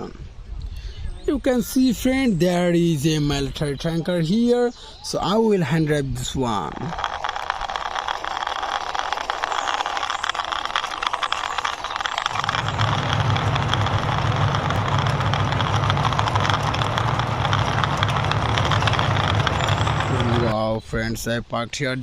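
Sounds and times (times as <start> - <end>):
toy truck wheels rattling: 6.1 - 20.6
steady low hum: 11.2 - 20.6.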